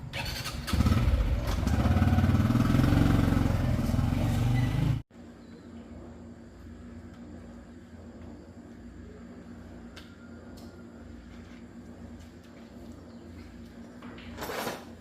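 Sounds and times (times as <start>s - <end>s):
motorcycle engine running: 0.0s - 5.0s.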